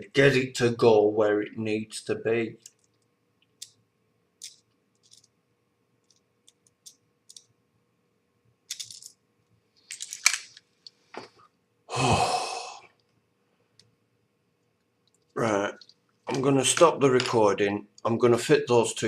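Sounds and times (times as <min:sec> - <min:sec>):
small parts clicking and rattling: 0:02.6 - 0:03.8, 0:04.4 - 0:05.4, 0:06.0 - 0:07.5, 0:08.7 - 0:09.2, 0:09.8 - 0:11.0, 0:15.0 - 0:17.4.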